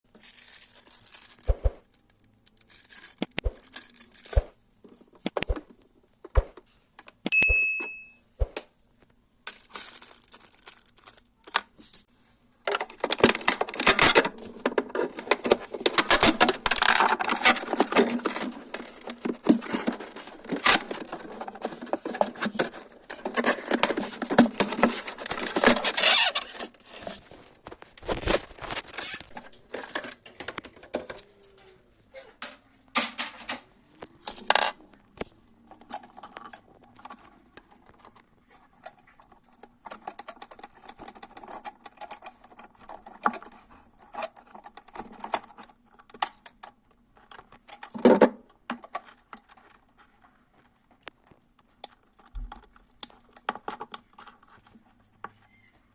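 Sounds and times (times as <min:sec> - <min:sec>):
rustling and scraping: 0:11.8 - 0:55.9.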